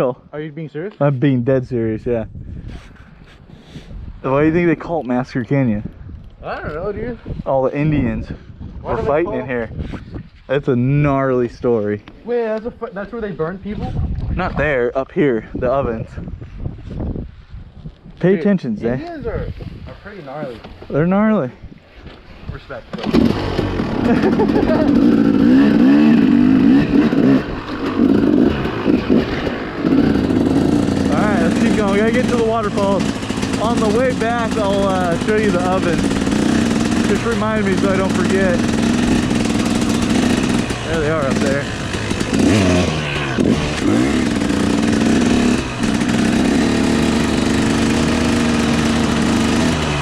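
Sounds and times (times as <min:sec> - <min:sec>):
dirt bike engine revving: 0:22.9 - 0:50.0.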